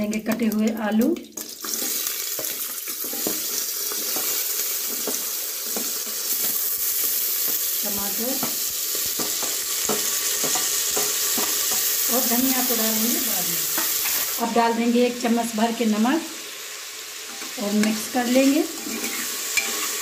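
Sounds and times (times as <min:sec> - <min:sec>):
potatoes sizzling in hot oil: 0:00.0 - 0:20.0
ladle clinking against steel dishes: 0:18.8 - 0:19.8.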